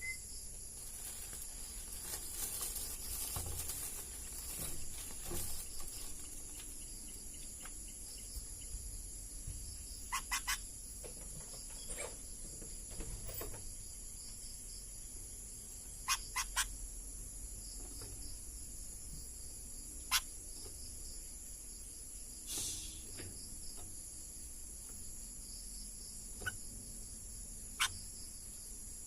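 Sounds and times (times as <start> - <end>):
crickets chirping: 0.0 - 29.0
short sharp chirps: 22.4 - 23.2.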